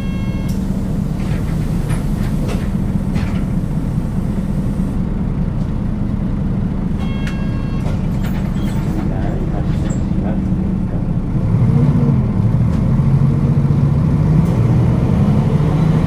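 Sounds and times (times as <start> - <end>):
brief ringing tone: 0.0 - 0.6, 7.0 - 8.0
bus diesel engine drone: 0.0 - 16.0
rattles in bus cabin: 0.0 - 16.0.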